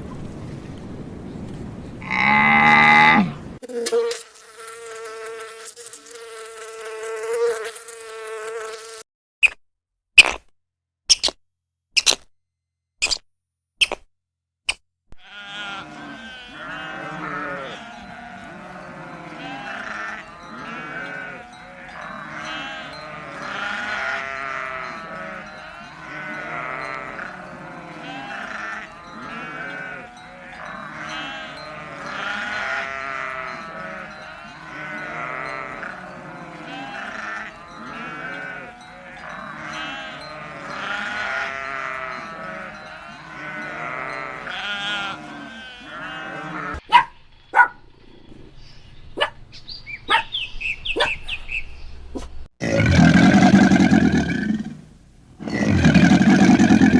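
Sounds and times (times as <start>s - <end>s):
flock bleating: 2.0s - 4.0s, 15.2s - 46.8s.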